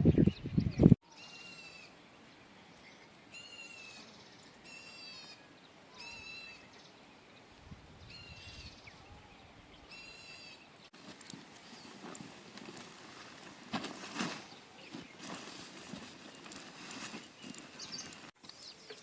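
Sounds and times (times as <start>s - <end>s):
outdoor background noise: 0.0s - 19.0s
bird calling: 8.1s - 13.3s.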